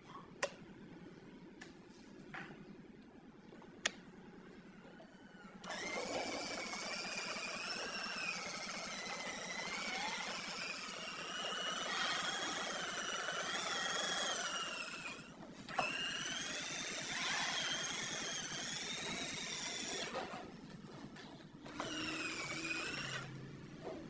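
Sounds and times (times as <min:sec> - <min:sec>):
motor click: 0:05.6 - 0:20.4, 0:21.6 - 0:23.4
small electric motor whining: 0:05.6 - 0:20.5, 0:21.6 - 0:24.0.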